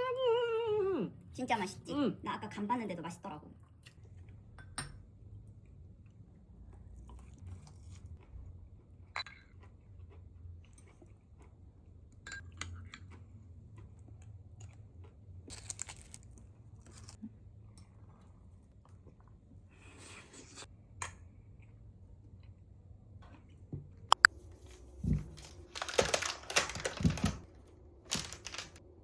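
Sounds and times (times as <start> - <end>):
chewing and crunching food: 5.4 - 19.8, 20.6 - 28.8.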